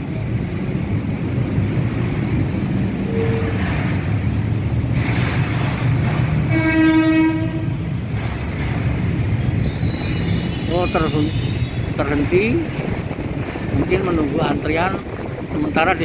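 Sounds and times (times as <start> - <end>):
train rumbling over bridge: 0.0 - 16.0
train horn: 6.5 - 7.8.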